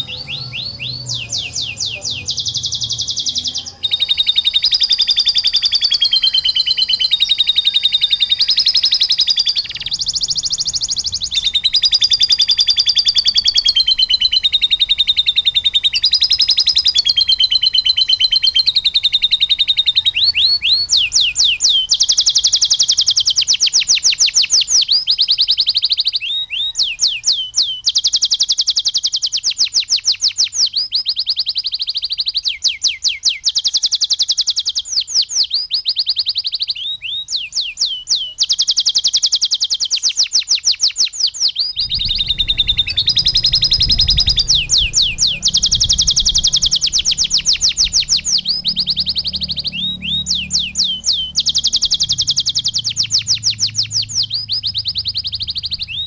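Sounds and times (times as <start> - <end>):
canary singing trills: 0.0 - 56.0
low rumble: 41.8 - 52.3.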